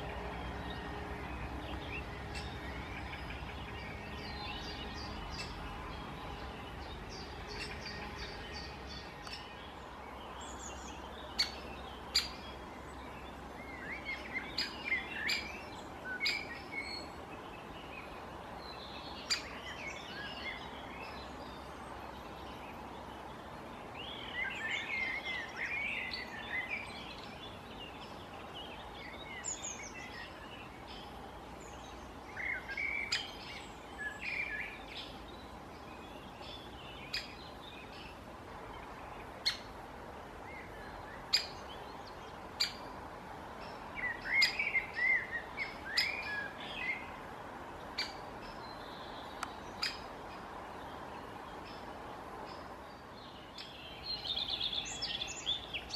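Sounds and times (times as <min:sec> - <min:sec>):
birds chattering chirps: 0:00.0 - 0:39.8, 0:40.4 - 0:55.9
sharp bird ticks: 0:49.3 - 0:50.1.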